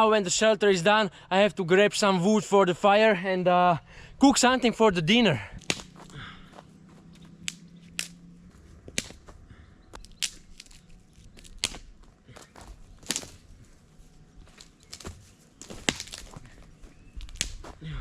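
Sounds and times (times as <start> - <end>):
twigs cracking: 5.5 - 17.9
twigs and leaves crunching: 5.5 - 18.0.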